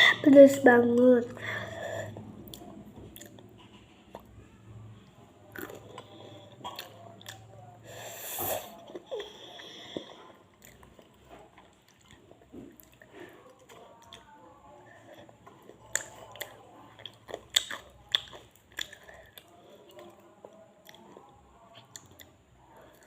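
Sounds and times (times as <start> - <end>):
crunchy chewing and biting: 5.4 - 7.5, 15.2 - 23.0.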